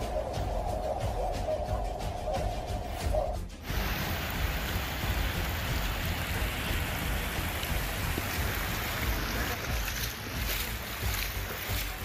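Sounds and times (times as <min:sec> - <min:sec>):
heavy rain hissing: 0:03.6 - 0:12.0.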